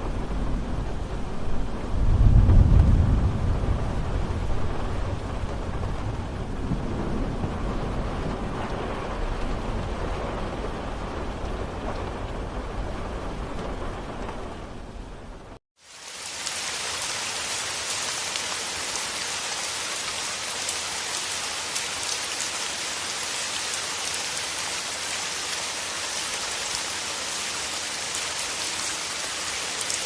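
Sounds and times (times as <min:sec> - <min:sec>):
thunder rolling: 0:00.0 - 0:15.5
steady rain falling: 0:00.0 - 0:30.0.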